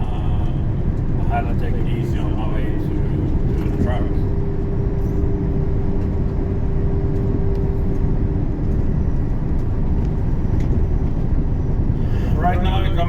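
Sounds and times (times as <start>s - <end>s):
diesel engine and road noise: 0.0s - 13.0s.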